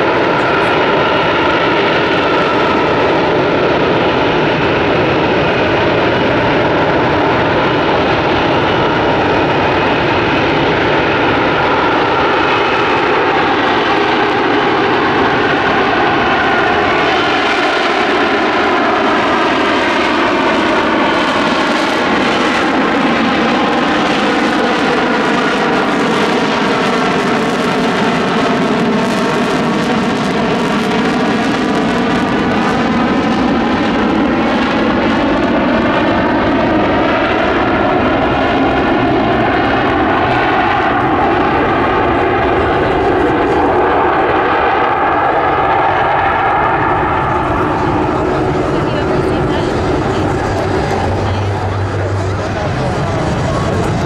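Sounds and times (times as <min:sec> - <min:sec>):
jet aircraft hovering: 0:00.0 - 0:54.0.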